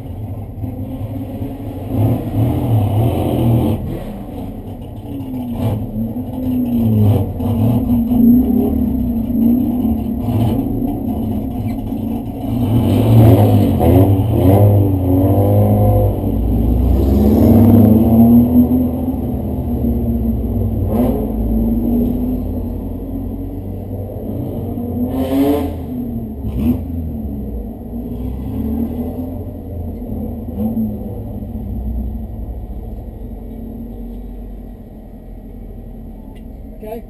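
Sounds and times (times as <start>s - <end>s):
race car engine revving: 0.0s - 34.7s.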